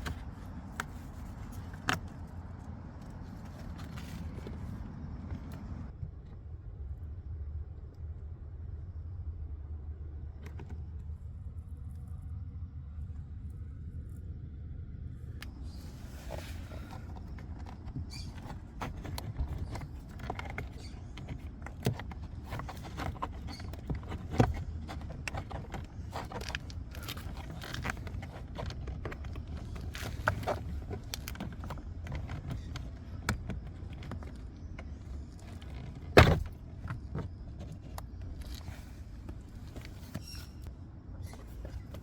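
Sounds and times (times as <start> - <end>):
steady low rumble: 0.0 - 42.0
hands and tools clicking and knocking: 16.9 - 40.3.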